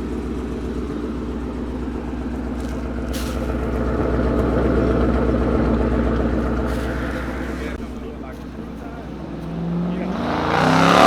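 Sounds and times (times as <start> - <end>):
car engine running: 0.0 - 11.0
short hiss: 3.0 - 3.9.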